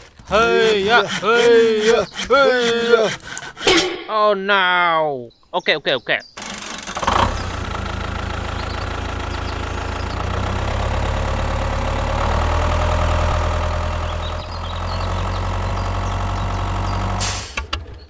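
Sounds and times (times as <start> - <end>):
engine idling: 6.4 - 18.0.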